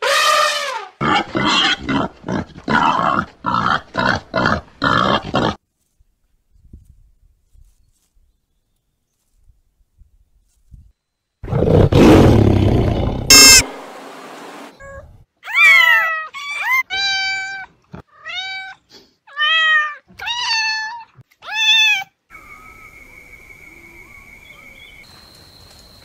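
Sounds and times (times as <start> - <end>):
animal roaring: 11.4 - 13.3
short high-pitched animal cries: 13.3 - 13.6.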